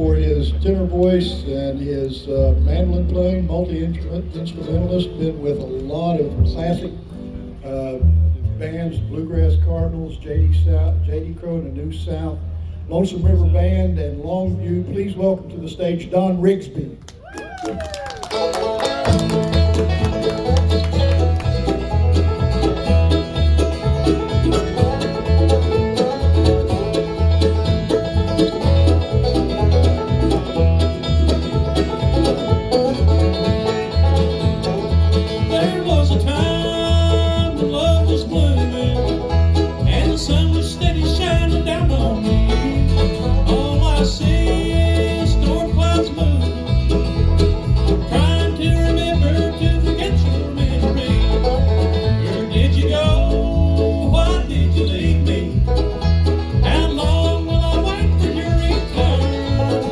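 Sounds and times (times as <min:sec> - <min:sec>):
banjo: 0:00.0 - 0:11.5, 0:18.3 - 0:59.9
guitar: 0:00.0 - 0:16.2, 0:17.1 - 0:59.9
walking bass: 0:00.0 - 0:59.9
bowed fiddle: 0:18.3 - 0:59.9.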